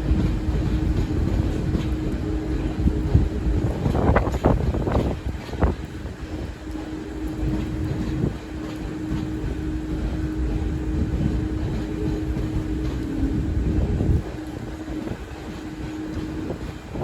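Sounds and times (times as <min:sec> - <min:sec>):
train humming: 0:00.0 - 0:17.0.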